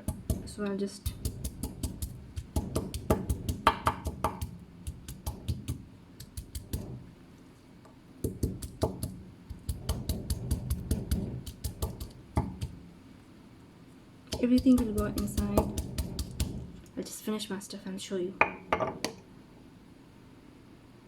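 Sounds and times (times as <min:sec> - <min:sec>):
knife chopping on cutting board: 0:01.1 - 0:07.0, 0:08.3 - 0:12.8, 0:14.3 - 0:16.8.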